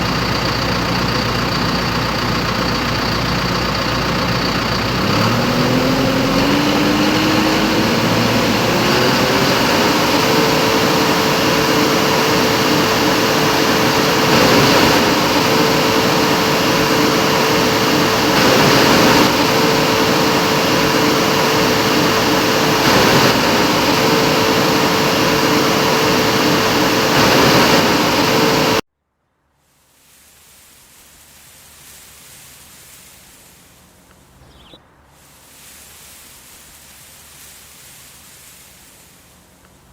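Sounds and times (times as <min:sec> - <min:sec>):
tractor engine revving: 0:00.0 - 0:28.8.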